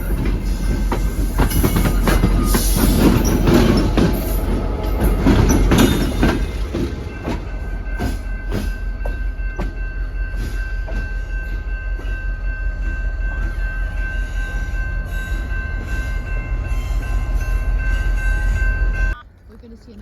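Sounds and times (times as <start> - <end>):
train wheels clicking over rail joints: 0.0 - 14.2
train rumble: 0.0 - 20.0.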